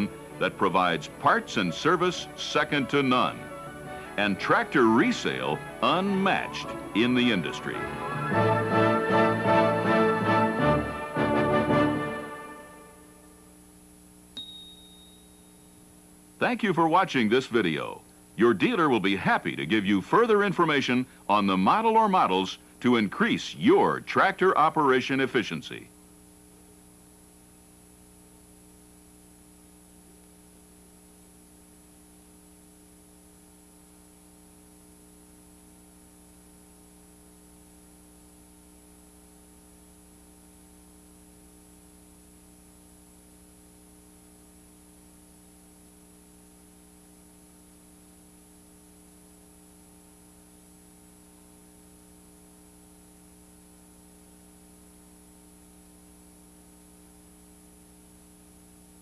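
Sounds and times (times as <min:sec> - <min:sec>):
electrical hum: 0:00.0 - 0:14.3, 0:15.5 - 0:36.5
tape hiss: 0:00.0 - 0:59.0.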